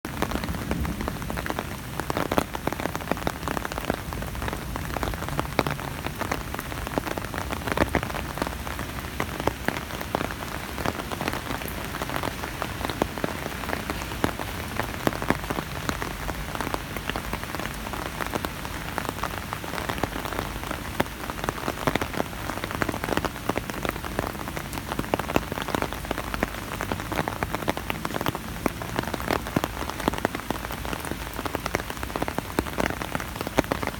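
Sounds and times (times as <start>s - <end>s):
rain drumming on an umbrella: 0.0s - 33.9s
hiss of rainfall: 0.1s - 33.9s.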